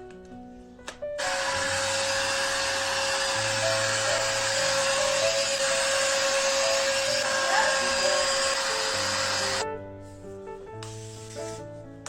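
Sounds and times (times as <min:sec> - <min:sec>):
soft background music: 0:00.0 - 0:12.0
blow dryer running: 0:01.2 - 0:09.6.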